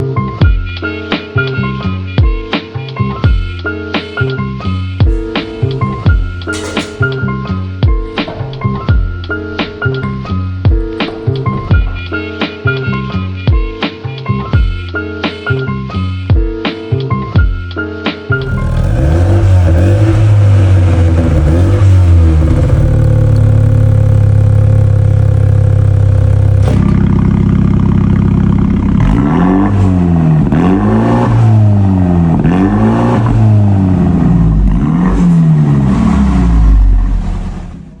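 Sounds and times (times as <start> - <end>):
car engine revving: 5.0 - 12.6, 18.4 - 38.0
car engine idling: 5.0 - 13.4, 18.4 - 38.0.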